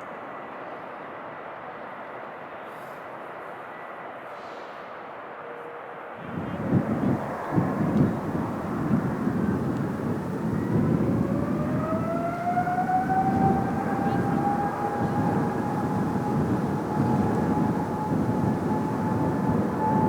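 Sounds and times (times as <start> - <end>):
jet engine whine: 0.0 - 20.0
low rumble: 6.4 - 20.0.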